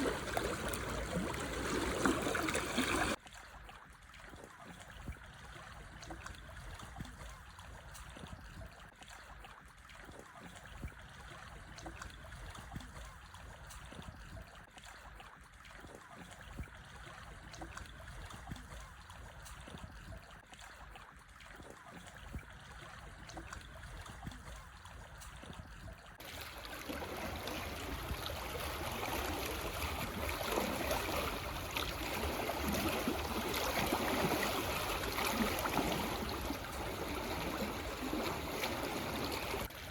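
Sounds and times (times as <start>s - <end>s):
water washing: 0.0s - 3.2s, 26.2s - 39.9s
small waves lapping on stones: 0.0s - 3.7s, 26.2s - 39.9s.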